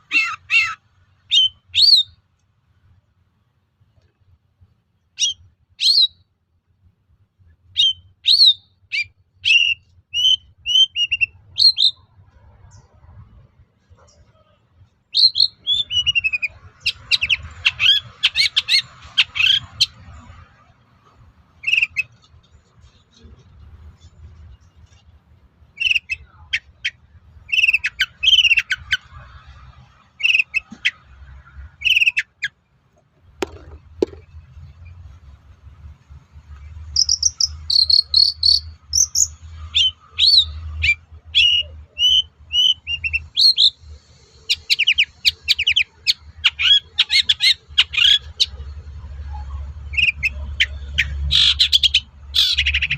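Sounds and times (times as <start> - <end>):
rapid bird chattering: 37.0 - 39.3.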